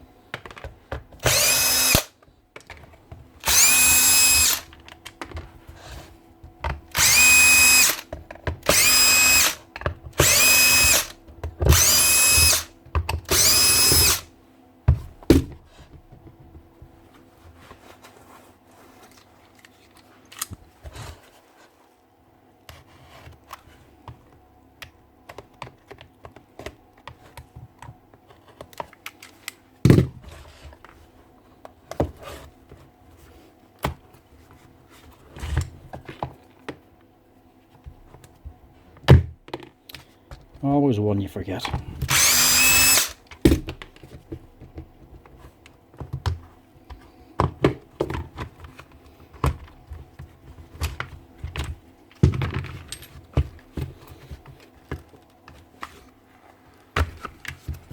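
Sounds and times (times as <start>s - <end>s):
cordless drill motor whine: 1.2s - 2.1s, 3.4s - 4.7s, 6.9s - 9.6s, 10.2s - 14.3s, 42.1s - 43.2s
tools and parts clicking: 1.2s - 2.1s, 7.0s - 8.0s, 10.2s - 14.2s, 42.1s - 43.2s.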